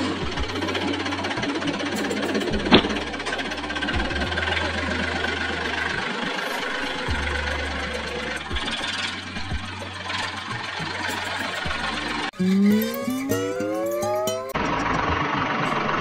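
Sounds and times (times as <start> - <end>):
engine idling rumble: 0.0 - 12.4.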